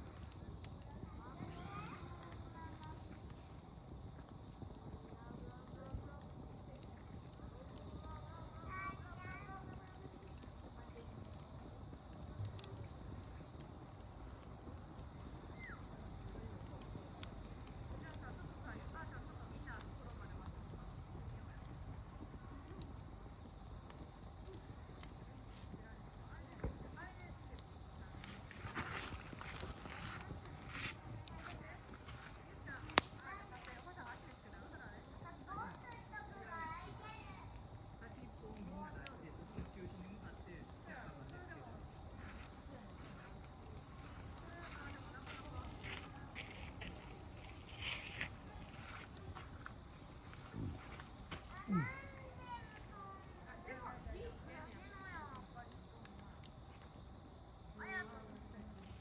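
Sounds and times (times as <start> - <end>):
campfire pops: 0.0 - 59.0
crickets chirping: 0.0 - 59.0
high insect trill: 0.0 - 59.0
distant children's voices: 0.1 - 39.9, 40.5 - 56.3.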